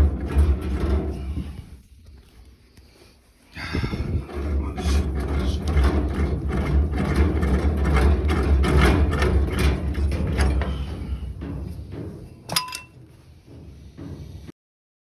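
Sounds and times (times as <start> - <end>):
steady low hum: 0.0 - 14.5
wrench clicks and scrapes: 12.4 - 13.0.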